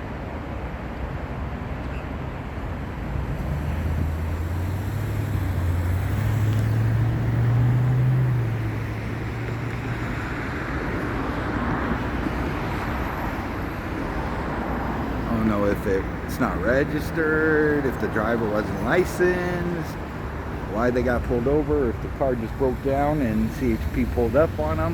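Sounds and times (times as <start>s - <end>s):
roadway traffic noise: 0.0s - 24.9s
vehicle accelerating past: 3.3s - 9.9s.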